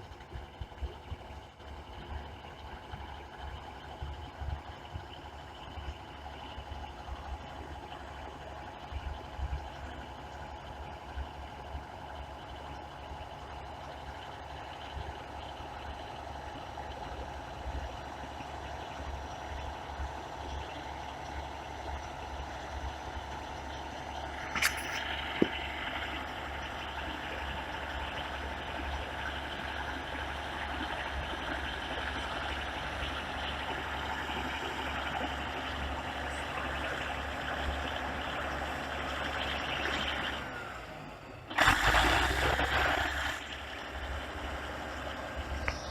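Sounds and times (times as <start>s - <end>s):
diesel engine running: 0.0s - 45.9s
sharp click: 24.5s - 25.6s.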